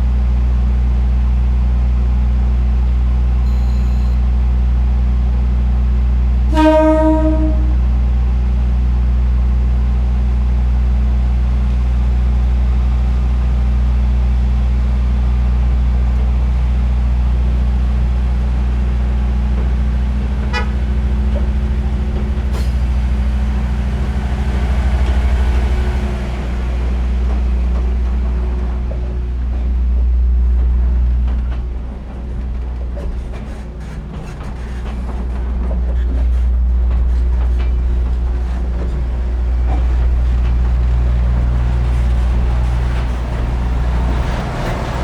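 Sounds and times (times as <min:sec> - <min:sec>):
diesel train engine idling: 0:00.1 - 0:45.0
train horn blast: 0:06.5 - 0:08.0, 0:20.4 - 0:21.0.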